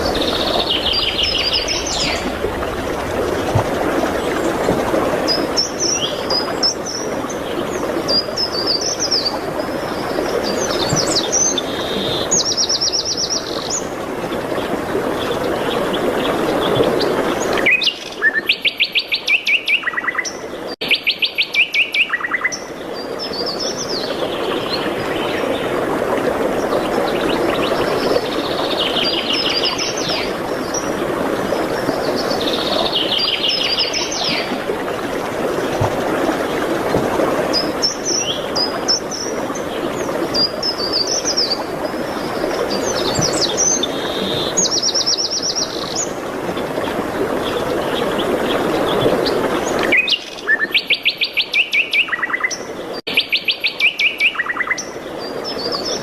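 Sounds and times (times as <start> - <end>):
songbirds chirping and trilling: 0.0 - 25.7, 37.5 - 56.0.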